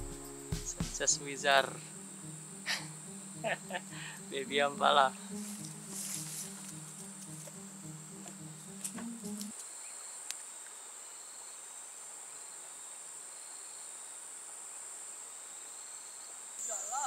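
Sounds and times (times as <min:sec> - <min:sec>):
background music: 0:00.0 - 0:09.5
high-pitched insect drone: 0:01.0 - 0:09.1, 0:15.8 - 0:17.0.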